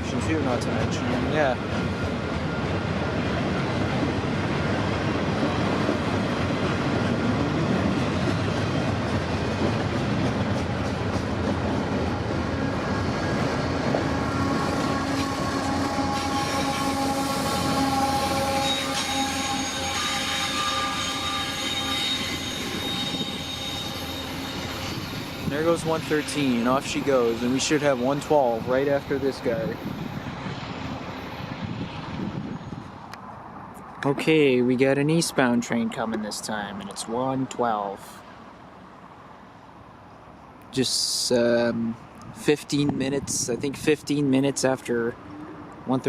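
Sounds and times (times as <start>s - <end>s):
freight train wheels on rails: 0.0s - 34.5s
high squealing wheels: 12.1s - 33.2s.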